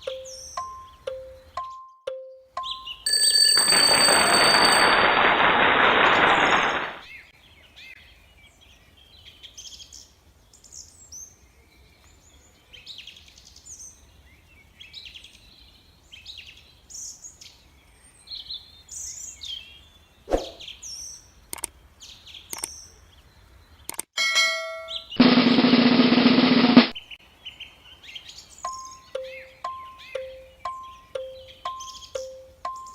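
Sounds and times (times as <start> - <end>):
small birds chirping: 0.0 - 3.1, 7.0 - 24.1, 26.9 - 32.9
sharp clicks: 21.5 - 21.7, 22.5 - 22.8, 23.9 - 24.1.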